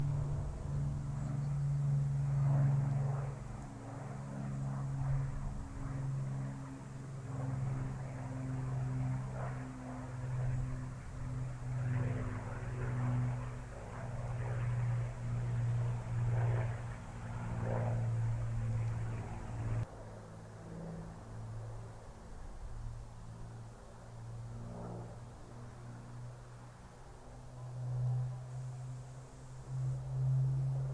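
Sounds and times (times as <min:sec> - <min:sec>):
propeller aircraft engines droning: 0:00.0 - 0:30.9.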